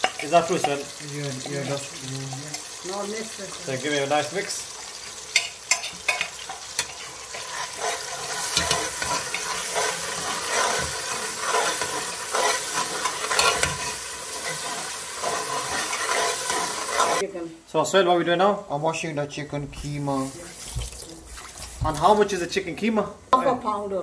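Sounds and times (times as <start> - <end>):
metal spoon scraping a pan: 0.0 - 2.8, 5.3 - 17.2
masala sizzling in oil: 0.0 - 17.2, 19.7 - 22.6.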